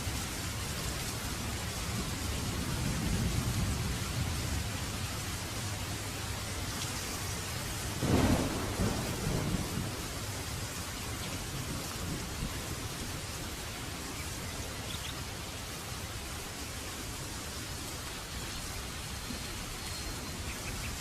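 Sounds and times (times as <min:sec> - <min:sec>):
steady rain falling: 0:00.0 - 0:21.0
thunder rumbling: 0:01.2 - 0:13.6.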